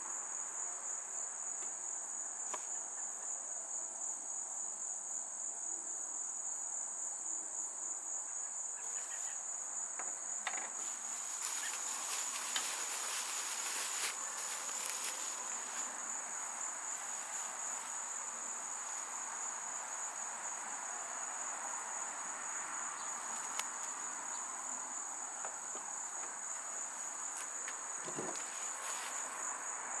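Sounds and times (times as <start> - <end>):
handling clicks and rustles: 10.8 - 15.9
high-pitched insect trilling: 10.8 - 24.9.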